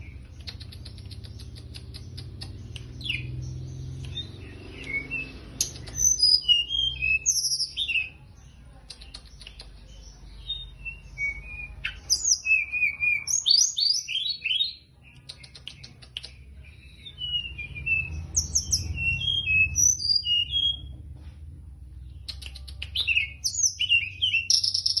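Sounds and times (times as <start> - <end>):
songbird chirping: 0.0 - 25.0.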